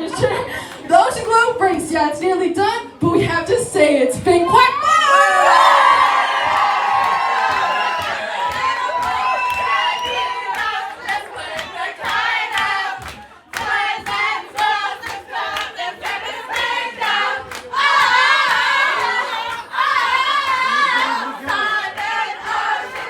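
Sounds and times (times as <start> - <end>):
hand claps: 6.4 - 22.1
group singing: 10.0 - 23.0.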